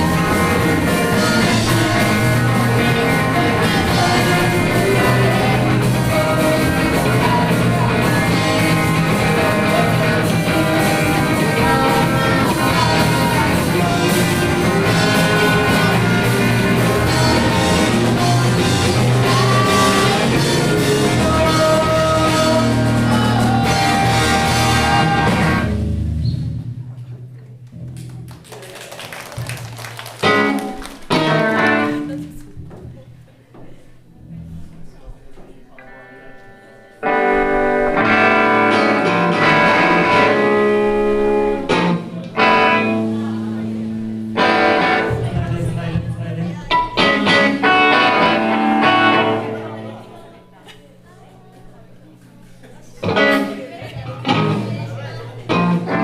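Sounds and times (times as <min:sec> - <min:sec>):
person singing: 0:00.0 - 0:25.7
drum kit: 0:00.0 - 0:28.4
electric guitar: 0:00.0 - 0:33.1, 0:35.7 - 0:50.4, 0:52.0 - 0:56.0.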